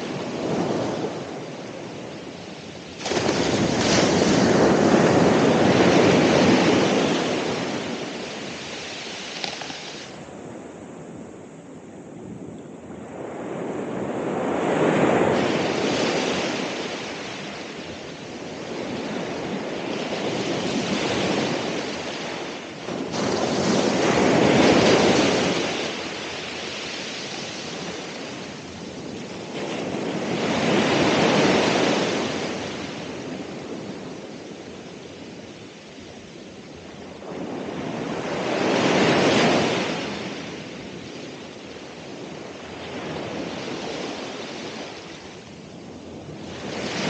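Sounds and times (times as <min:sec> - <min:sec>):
ocean waves breaking: 0:00.0 - 0:10.5, 0:37.1 - 0:47.0.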